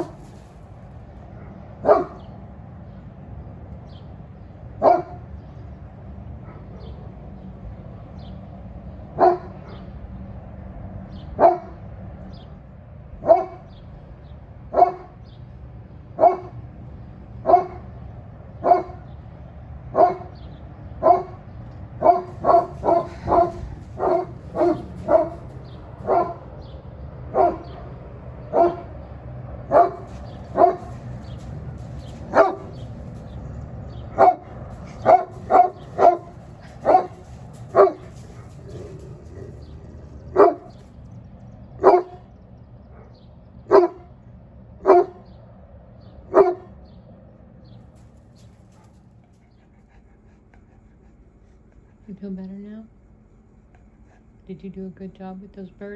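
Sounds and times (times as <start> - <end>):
dog barking deeply: 1.3 - 2.3, 4.8 - 5.2, 9.1 - 9.9, 11.4 - 11.8, 13.2 - 13.7, 14.7 - 15.2, 16.2 - 16.6, 17.4 - 17.9, 18.6 - 19.1, 19.9 - 20.4, 21.0 - 26.5, 27.3 - 29.0, 29.6 - 33.5, 34.1 - 40.9, 41.8 - 42.3, 42.9 - 44.1, 44.8 - 45.2, 46.3 - 46.8.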